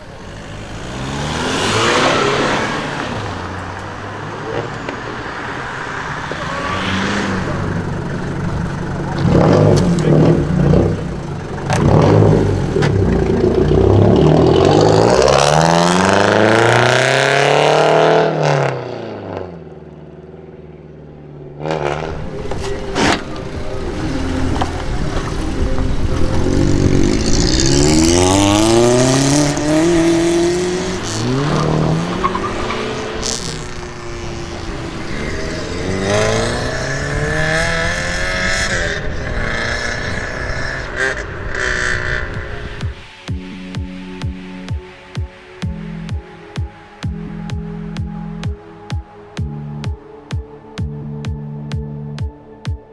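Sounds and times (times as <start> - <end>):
car engines revving and accelerating: 0.0 - 50.1.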